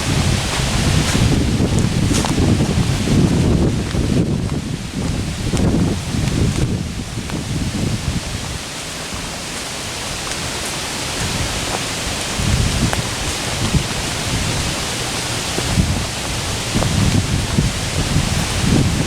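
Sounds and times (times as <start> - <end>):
rain falling in woodland: 0.0 - 19.0
low thuds and rumbles: 12.4 - 19.0.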